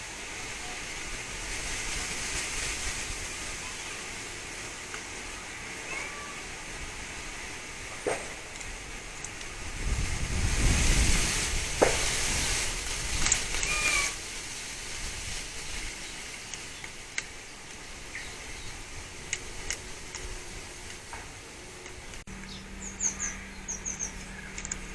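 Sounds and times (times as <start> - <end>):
wind gusting on microphone: 0.0 - 22.3
faint clicks: 24.5 - 24.9.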